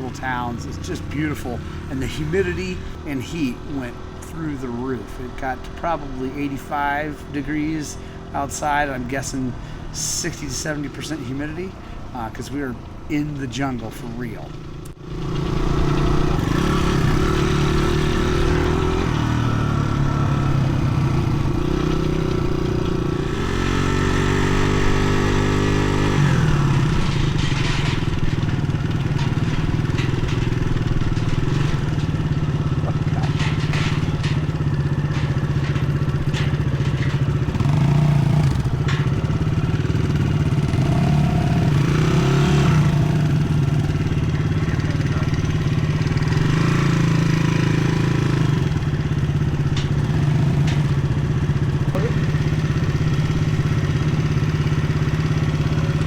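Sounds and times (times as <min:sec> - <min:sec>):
dirt bike engine: 0:00.0 - 0:56.0
scattered clatter: 0:14.7 - 0:56.0.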